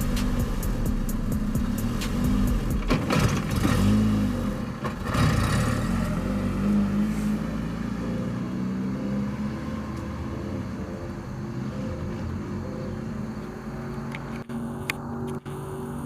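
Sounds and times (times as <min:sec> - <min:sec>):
car engine pulling away: 0:00.0 - 0:16.0.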